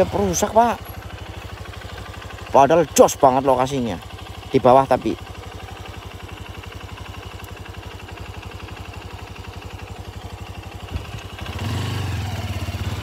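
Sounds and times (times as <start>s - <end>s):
motorcycle engine revving: 0.0s - 13.0s
small motorcycle engine idling: 0.0s - 13.0s.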